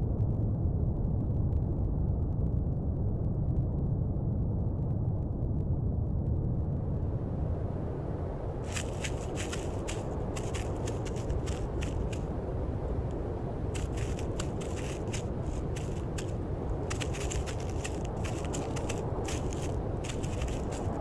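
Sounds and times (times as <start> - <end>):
low background rumble: 0.0 - 21.0
crisp crunching and crackling: 8.7 - 12.2, 13.8 - 21.0.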